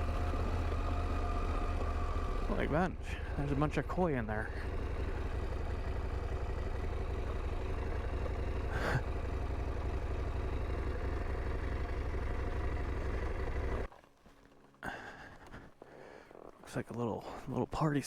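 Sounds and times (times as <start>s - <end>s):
motorcycle engine idling: 0.0s - 13.9s.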